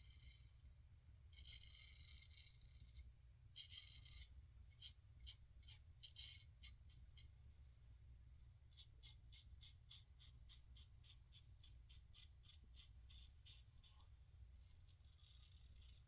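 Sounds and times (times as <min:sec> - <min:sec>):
razor scraping stubble: 0:15.0 - 0:16.0.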